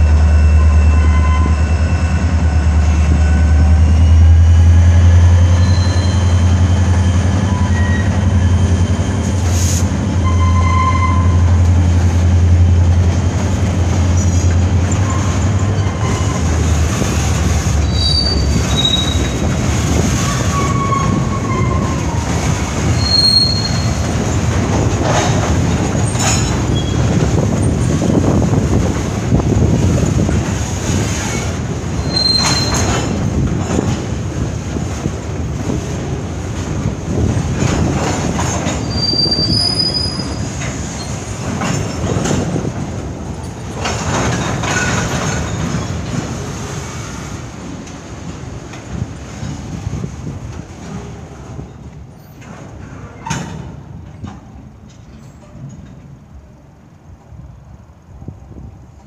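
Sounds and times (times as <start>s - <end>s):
freight train rolling past: 0.0s - 59.0s
high wheel squeals: 5.4s - 9.5s, 17.8s - 19.4s, 22.9s - 24.0s, 32.0s - 33.2s, 38.7s - 41.2s
wheels clicking over rail joints: 11.2s - 56.6s.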